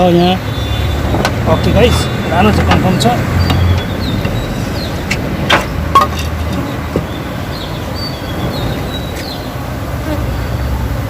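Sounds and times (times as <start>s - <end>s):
bees buzzing: 0.4s - 11.0s
sharp knocks: 5.1s - 7.2s.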